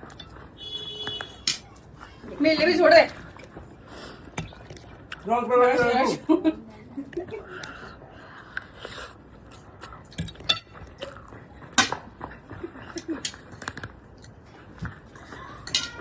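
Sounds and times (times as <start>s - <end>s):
cutlery clinking against dishes: 1.0s - 1.8s, 10.2s - 11.2s, 11.8s - 12.0s, 15.6s - 16.0s.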